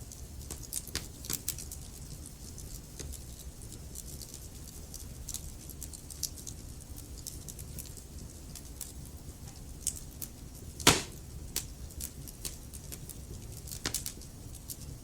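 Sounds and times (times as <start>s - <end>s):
burning logs crackling: 0.0s - 15.0s
loud pop of fire: 10.8s - 11.2s.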